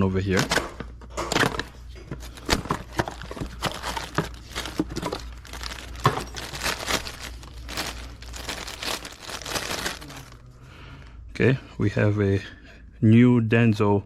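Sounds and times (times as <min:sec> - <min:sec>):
faint low hum: 0:00.0 - 0:14.0
packaging crinkling and rustling: 0:00.2 - 0:10.6.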